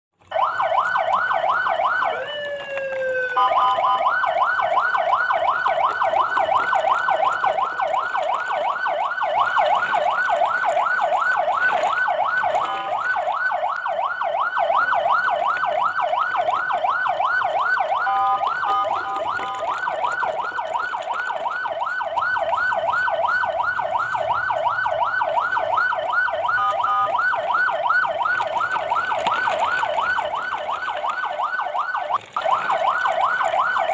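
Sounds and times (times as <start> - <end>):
electronic siren yelping: 0.2 - 33.9.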